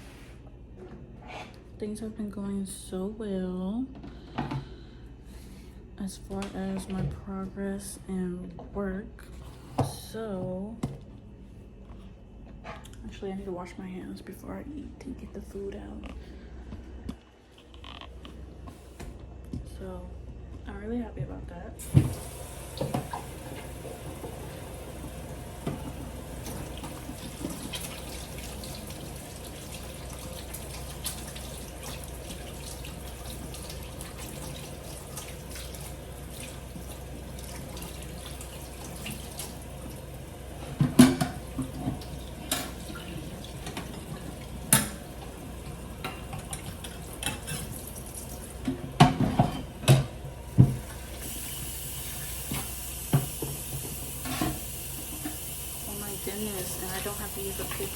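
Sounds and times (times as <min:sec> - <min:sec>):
tap water running: 0:21.8 - 0:57.9.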